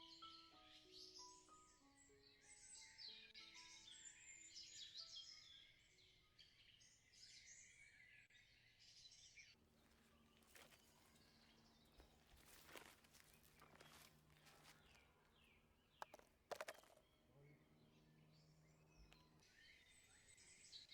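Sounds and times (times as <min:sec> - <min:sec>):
songbirds chirping: 0:00.0 - 0:20.9
rustling in leaf litter: 0:09.7 - 0:15.1.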